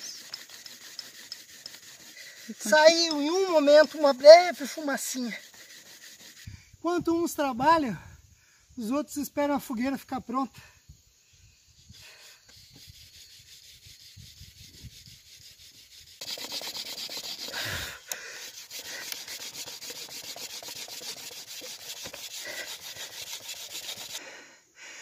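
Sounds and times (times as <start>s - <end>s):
bamboo rasping against bamboo: 0.0s - 6.6s, 11.9s - 24.2s.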